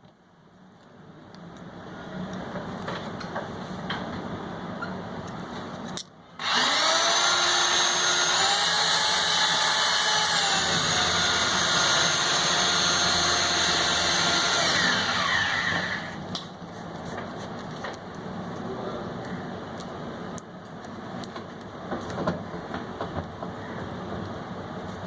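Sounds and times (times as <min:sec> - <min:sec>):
electric drill motor running: 0:06.4 - 0:16.2.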